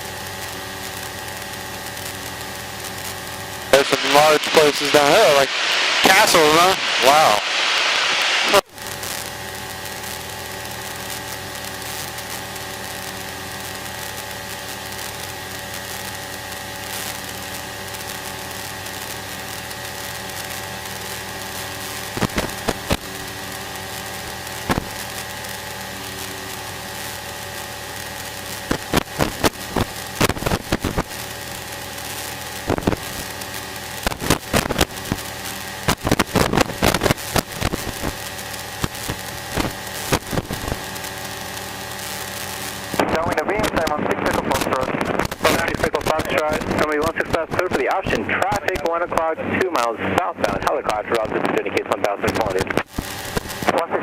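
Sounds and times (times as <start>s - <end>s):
sharp crackling clicks: 8.9s - 49.0s, 50.9s - 53.8s.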